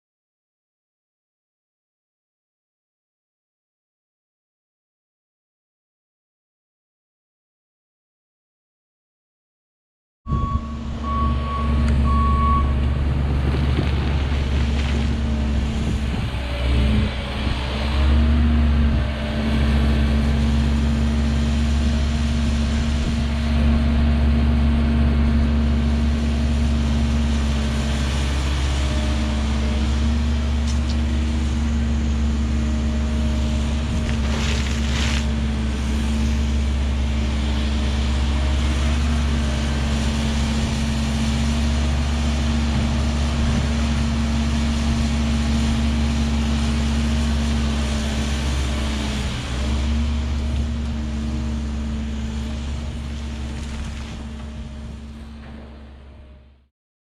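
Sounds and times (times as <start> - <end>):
short beeps: 10.3 - 12.8
diesel engine running: 10.3 - 56.6.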